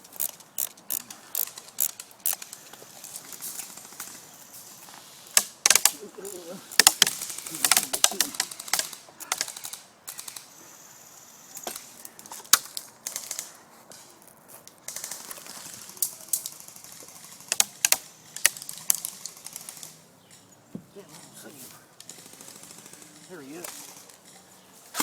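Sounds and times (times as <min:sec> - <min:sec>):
airsoft guns firing: 0:05.1 - 0:10.5, 0:22.1 - 0:24.2.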